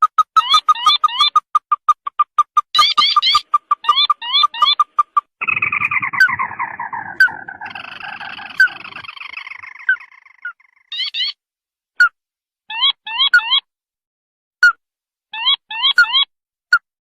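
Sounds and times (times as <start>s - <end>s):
crake chattering trill: 0.2s - 11.3s
quick rising bird notes: 5.4s - 11.3s.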